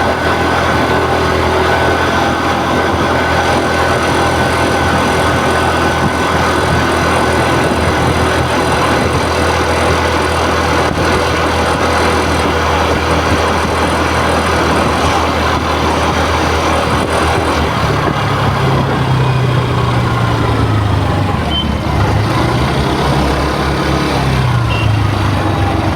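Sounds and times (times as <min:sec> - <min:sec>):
scooter engine running: 0:00.0 - 0:25.9.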